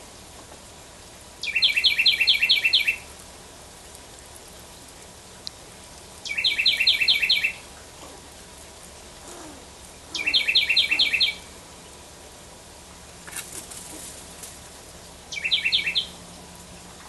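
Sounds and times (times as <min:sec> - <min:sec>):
songbird calling: 0:01.4 - 0:03.1, 0:06.2 - 0:08.3, 0:09.2 - 0:11.6, 0:15.3 - 0:16.2
faint rustle: 0:13.2 - 0:14.9.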